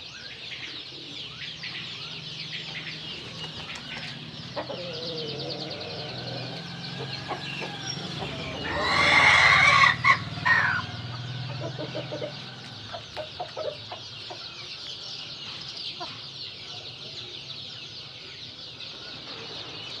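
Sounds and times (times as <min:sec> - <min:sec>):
chicken clucking: 0:02.8 - 0:14.9
rooster crowing: 0:04.6 - 0:13.0.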